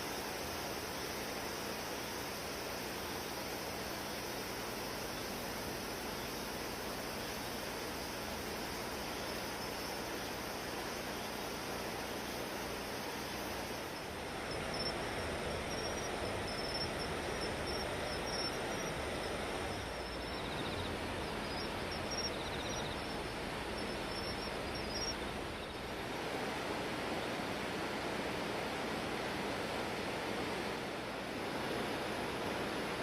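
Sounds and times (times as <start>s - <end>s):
river rushing in flood: 0.0s - 33.0s
faint high chirping: 15.6s - 25.8s.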